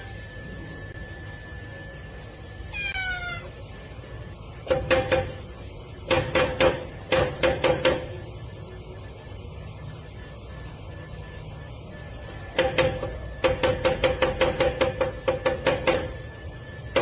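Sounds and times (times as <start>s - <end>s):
cat meowing: 2.7s - 3.6s.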